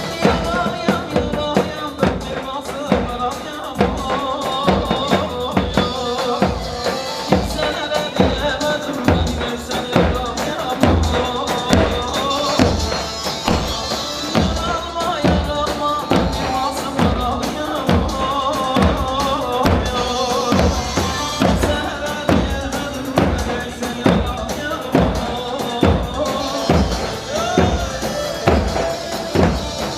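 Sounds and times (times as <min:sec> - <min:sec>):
steady drum beat: 0:00.0 - 0:29.9
keyboard melody: 0:06.5 - 0:29.9.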